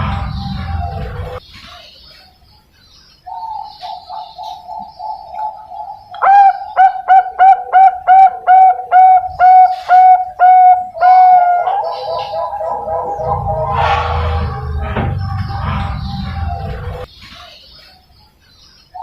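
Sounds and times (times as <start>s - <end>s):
dove cooing: 3.4s - 17.1s.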